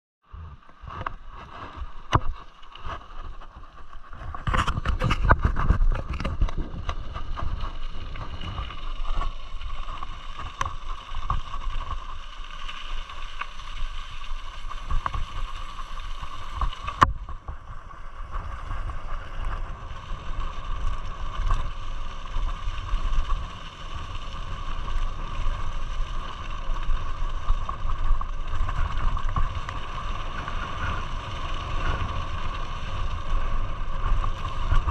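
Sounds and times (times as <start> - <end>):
wind buffeting microphone: 3.2 - 9.4.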